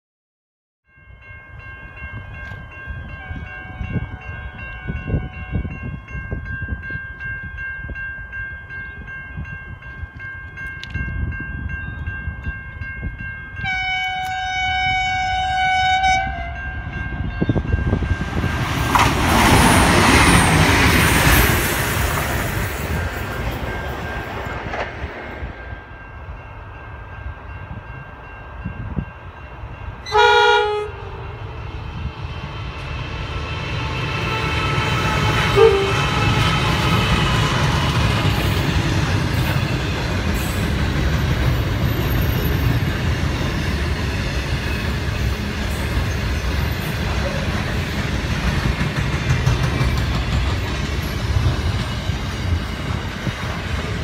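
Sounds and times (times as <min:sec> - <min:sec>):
locomotive horn: 0:13.6 - 0:16.9, 0:30.0 - 0:31.6, 0:33.4 - 0:37.1
train horn blast: 0:13.6 - 0:16.9, 0:30.0 - 0:31.6, 0:33.3 - 0:37.0
train wheels rushing on rails: 0:16.8 - 0:54.0.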